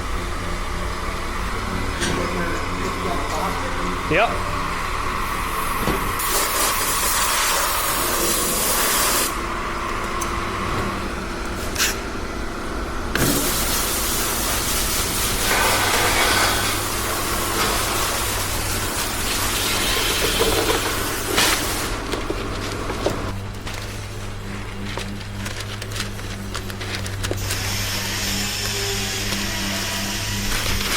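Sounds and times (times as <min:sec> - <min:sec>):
low machine hum: 0:00.0 - 0:30.9
compressed air hissing: 0:05.2 - 0:09.4, 0:13.2 - 0:22.1, 0:27.4 - 0:30.9.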